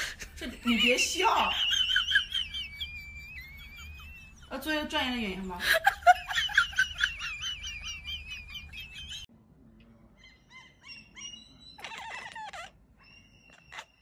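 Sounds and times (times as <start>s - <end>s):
cat chattering: 10.2s - 14.0s.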